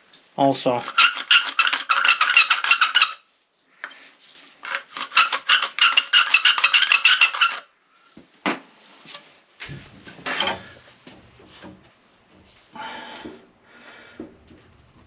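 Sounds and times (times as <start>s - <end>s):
rasping on copper pipe: 4.7s - 7.6s.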